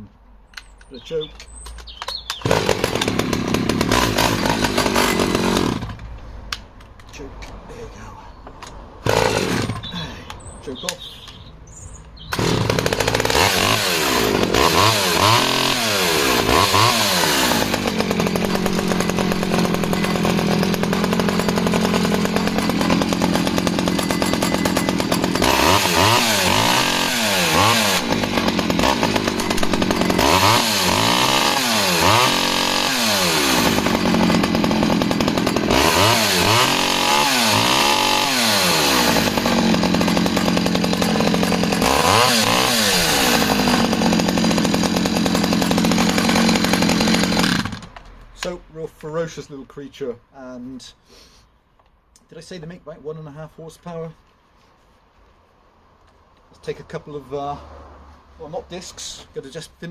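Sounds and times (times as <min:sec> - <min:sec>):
chainsaw engine revving: 0:02.4 - 0:06.1, 0:09.0 - 0:10.0, 0:12.3 - 0:48.0.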